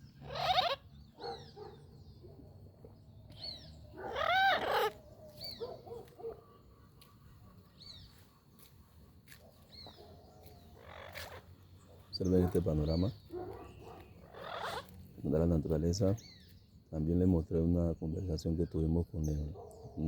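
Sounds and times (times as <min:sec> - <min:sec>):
parrot squawk: 0:00.2 - 0:01.5, 0:04.0 - 0:05.0, 0:10.8 - 0:11.4, 0:14.3 - 0:14.9.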